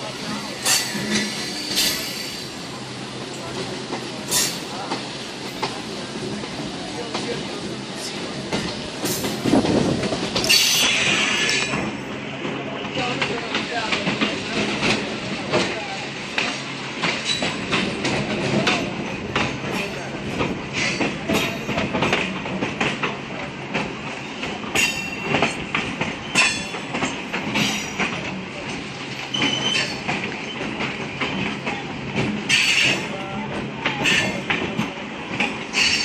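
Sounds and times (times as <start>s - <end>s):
train running noise: 0.0s - 36.0s
wheels clattering over rail joints: 0.2s - 36.0s
high wheel squeals: 29.3s - 30.7s.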